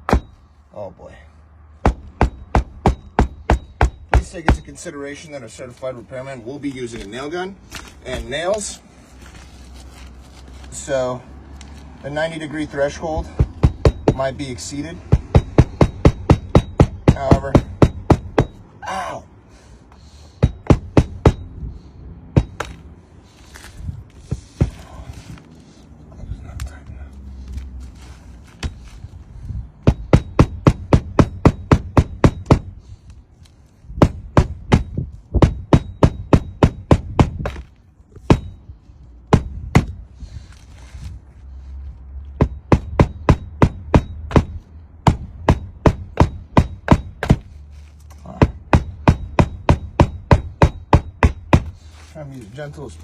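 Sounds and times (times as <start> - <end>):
hammer striking roofing nails: 1.8 - 4.7, 13.4 - 14.3, 15.1 - 18.6, 20.4 - 21.4, 29.8 - 32.7, 34.0 - 37.7, 42.4 - 47.5, 48.3 - 51.8.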